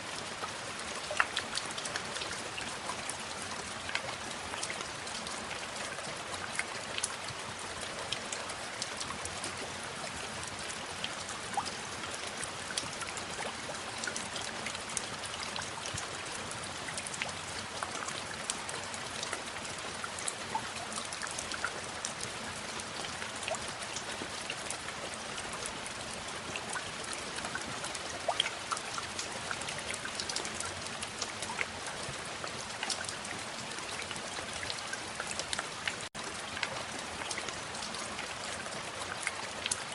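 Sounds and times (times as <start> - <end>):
raindrops striking close by: 0.0 - 39.9
steady rain falling: 0.0 - 39.9.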